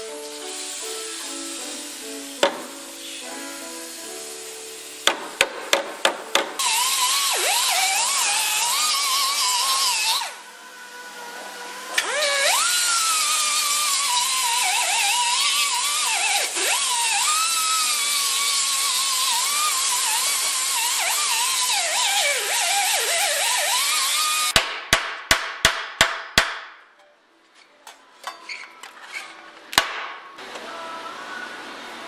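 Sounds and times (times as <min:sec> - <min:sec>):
power cutter whining on sheet metal: 0:06.6 - 0:24.6.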